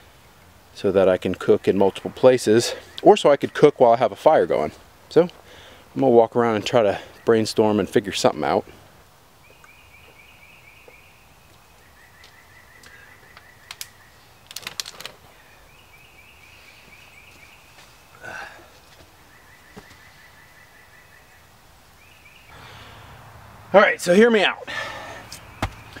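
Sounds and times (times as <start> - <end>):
sharp clicks: 12.2 - 15.2.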